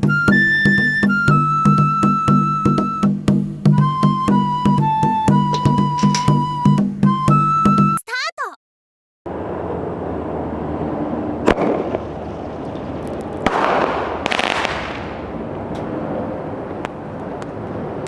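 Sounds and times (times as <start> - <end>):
firework launch pop: 11.5 - 12.0, 13.4 - 15.3
firework burst: 13.4 - 15.5.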